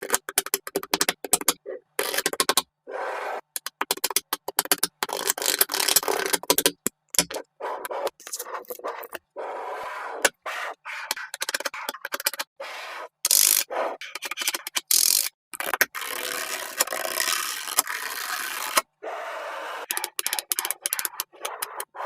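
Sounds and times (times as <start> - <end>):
magnetic balls clicking together: 0.0 - 2.7, 3.6 - 7.4, 19.9 - 21.9.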